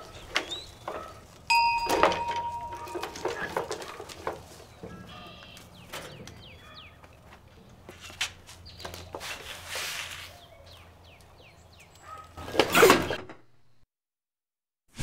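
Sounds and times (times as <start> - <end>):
small birds chirping: 0.0 - 1.2, 4.5 - 7.7, 8.5 - 9.2, 10.3 - 12.3.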